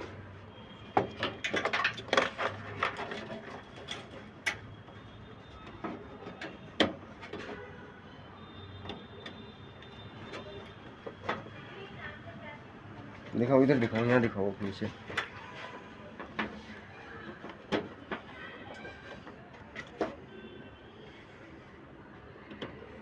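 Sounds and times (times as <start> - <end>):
hard objects knocking and clicking: 0.9 - 4.7, 16.1 - 20.2.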